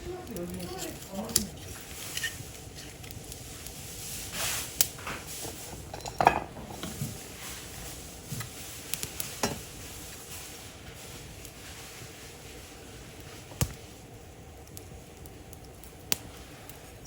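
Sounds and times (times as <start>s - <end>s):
cookware and utensils clinking: 5.2s - 7.3s, 9.2s - 9.7s.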